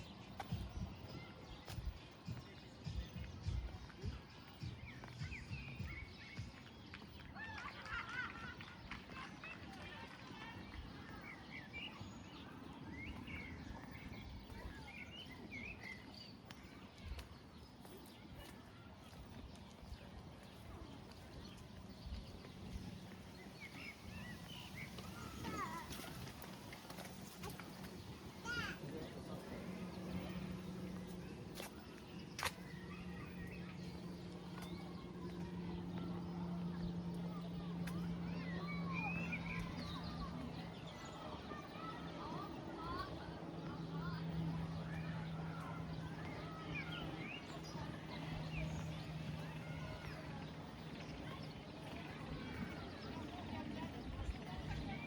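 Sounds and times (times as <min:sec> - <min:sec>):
songbirds chirping: 0:00.0 - 0:55.0
low outdoor background hum: 0:19.6 - 0:55.0.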